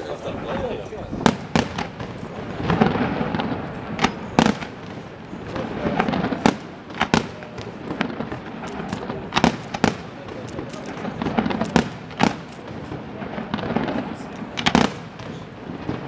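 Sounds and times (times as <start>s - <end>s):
firework shells bursting: 1.2s - 16.0s
rumble and smaller reports: 4.9s - 14.8s.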